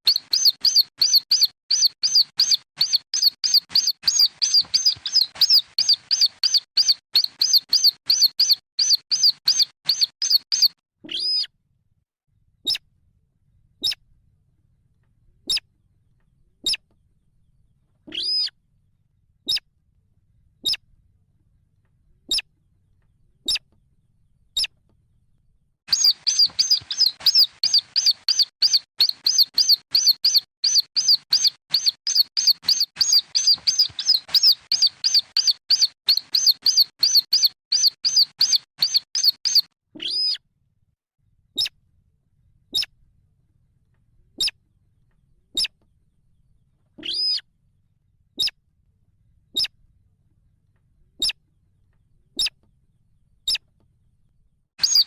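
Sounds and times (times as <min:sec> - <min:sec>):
rail chicks peeping: 0:00.1 - 0:11.5, 0:25.9 - 0:40.4, 0:54.8 - 0:55.0.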